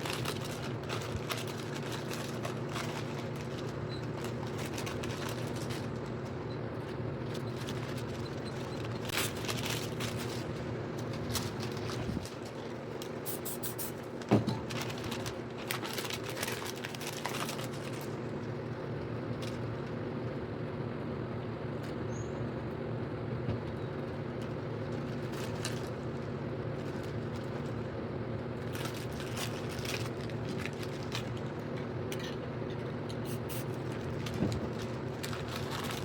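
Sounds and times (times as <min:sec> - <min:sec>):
machine hum: 0:00.0 - 0:36.0
spray paint can hissing: 0:13.3 - 0:14.0.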